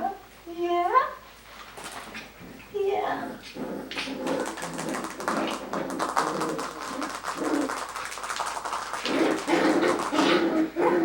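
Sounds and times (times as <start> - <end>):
clicks and taps on floor: 3.9 - 10.3.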